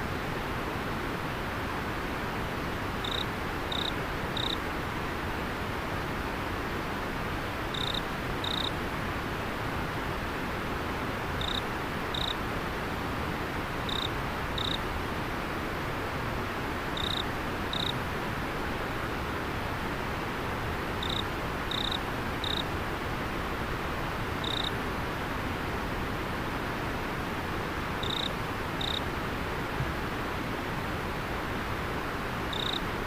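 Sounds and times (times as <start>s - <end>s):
river water flowing: 0.1s - 33.0s
insect chirping: 3.0s - 4.6s, 7.7s - 8.7s, 11.4s - 12.4s, 13.9s - 14.8s, 17.0s - 18.0s, 21.0s - 22.6s, 24.4s - 24.7s, 28.0s - 29.0s, 32.5s - 32.8s.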